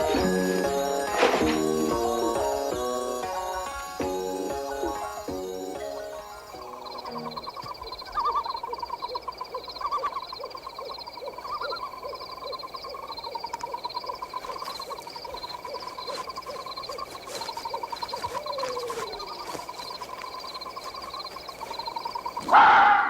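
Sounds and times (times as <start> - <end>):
layered insect trills: 0.0 - 22.6
low animal call: 22.4 - 23.0.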